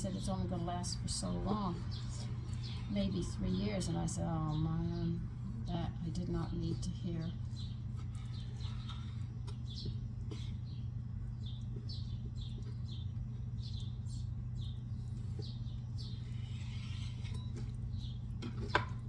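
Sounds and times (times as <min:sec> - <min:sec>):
low electrical hum: 0:00.0 - 0:19.0
bird chirping: 0:01.6 - 0:16.6.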